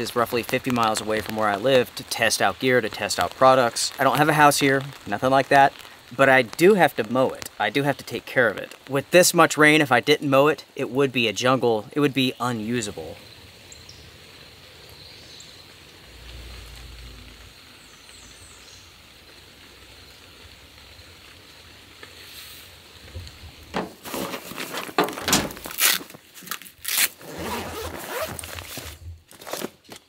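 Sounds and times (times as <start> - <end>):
rain falling: 0.0 - 29.7
cooler bag rustling: 23.7 - 30.0
zipper pulls: 26.8 - 29.7.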